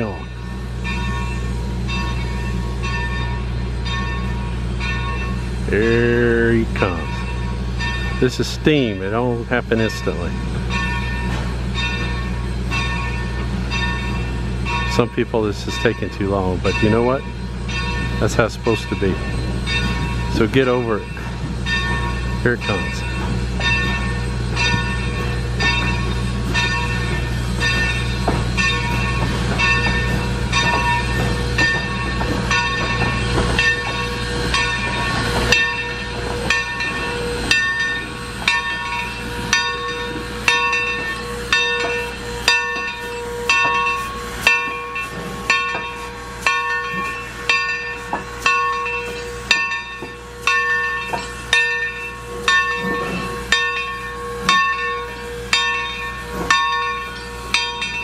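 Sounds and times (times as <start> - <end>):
locomotive bell ringing: 0.0 - 58.0
steam hissing: 0.0 - 58.0.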